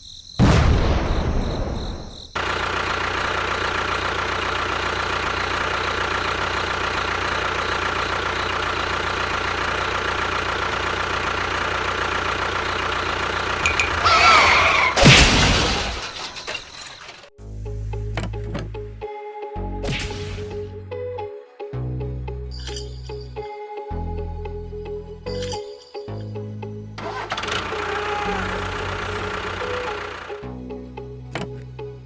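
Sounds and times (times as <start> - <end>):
loud thump: 0.4 - 2.1
small motor running: 27.0 - 30.4.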